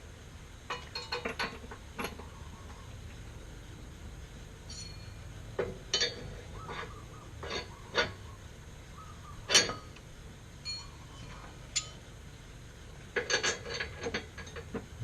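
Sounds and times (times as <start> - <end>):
metallic clicks and clanks: 0.7 - 2.8, 4.6 - 8.3, 9.4 - 10.1, 10.7 - 12.0, 13.0 - 15.0.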